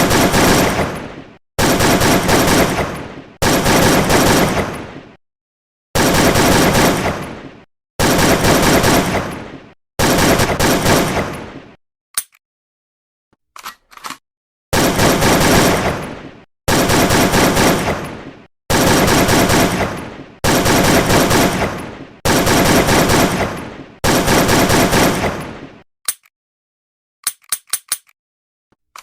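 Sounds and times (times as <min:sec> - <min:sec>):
automatic gunfire bursts: 0:00.0 - 0:01.0, 0:01.6 - 0:04.7, 0:06.0 - 0:07.3, 0:08.0 - 0:09.4, 0:10.0 - 0:11.3, 0:14.8 - 0:16.1, 0:16.7 - 0:25.4.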